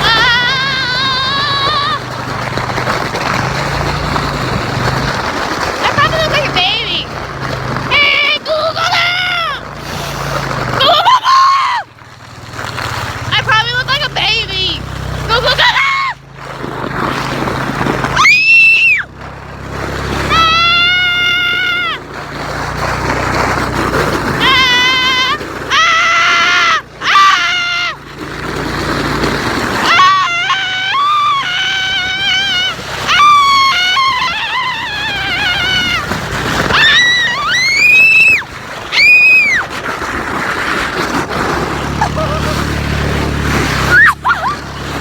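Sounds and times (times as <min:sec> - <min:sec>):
children squealing: 0:00.0 - 0:02.5, 0:07.9 - 0:12.0, 0:15.3 - 0:16.3, 0:18.0 - 0:19.2, 0:20.1 - 0:22.4, 0:24.3 - 0:28.9, 0:29.6 - 0:39.8, 0:41.7 - 0:45.0.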